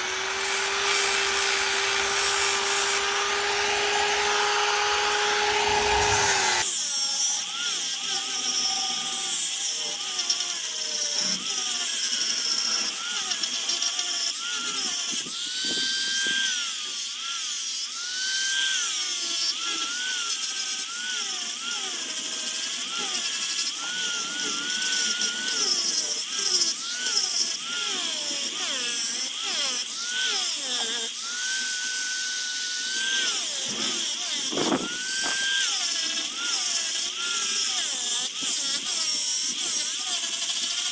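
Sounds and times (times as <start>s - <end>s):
low motor hum: 0.0s - 6.6s
rotary tool carving wood: 0.0s - 40.9s.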